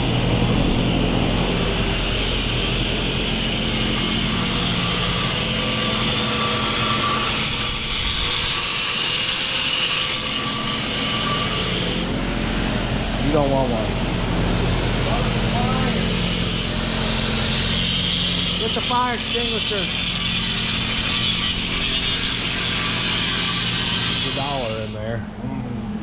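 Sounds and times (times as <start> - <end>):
low engine hum: 0.0 - 5.3, 12.1 - 17.0, 25.0 - 26.0
welding arc sizzling: 0.0 - 25.0.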